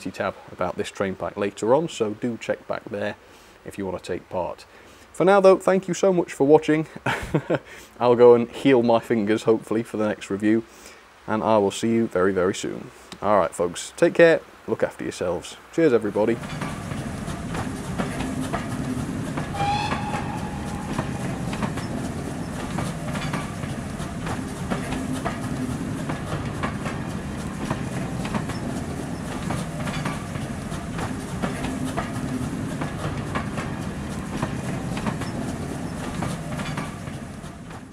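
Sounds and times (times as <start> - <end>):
train carriages passing: 15.9 - 37.9
wheels clicking over rail joints: 16.2 - 37.9
brief high tone: 19.5 - 22.0.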